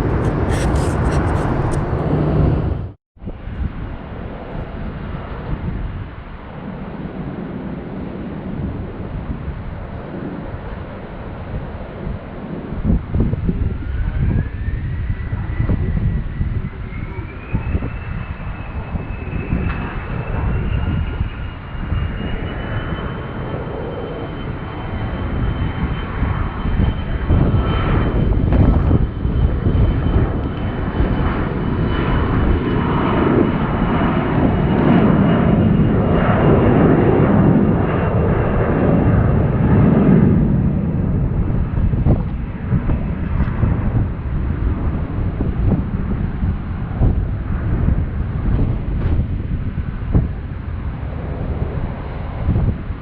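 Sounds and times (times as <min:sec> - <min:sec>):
jet engines spooling up: 0:00.0 - 0:03.0.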